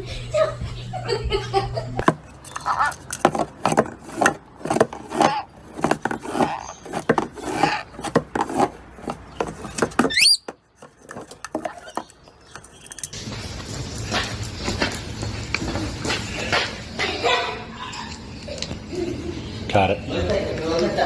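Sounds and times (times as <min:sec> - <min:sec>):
parrot clicking and rasping: 0:02.0 - 0:13.2.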